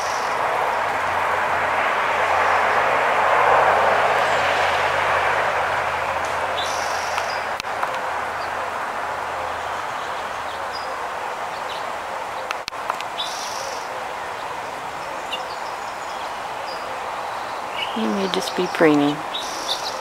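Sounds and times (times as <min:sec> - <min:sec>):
small birds chirping: 0:00.0 - 0:00.8, 0:06.5 - 0:07.7, 0:09.5 - 0:20.0
outdoor background hiss: 0:00.0 - 0:20.0.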